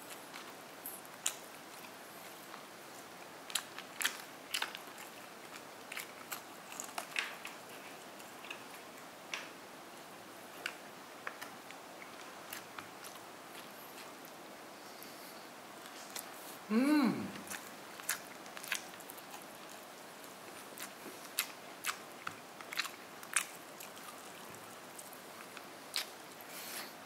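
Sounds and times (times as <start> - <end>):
crunchy chewing of fried chicken: 0.0 - 27.0
faint steady hiss: 0.0 - 27.0.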